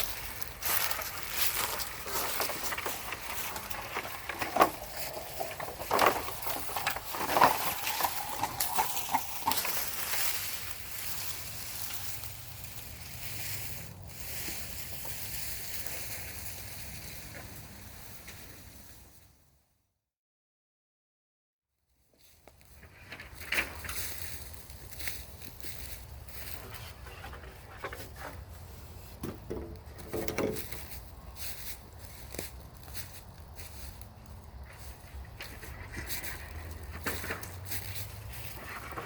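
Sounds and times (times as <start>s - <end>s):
rustling with cracks and knocks: 0.0s - 17.6s, 22.5s - 39.0s
steady background noise: 22.8s - 39.0s.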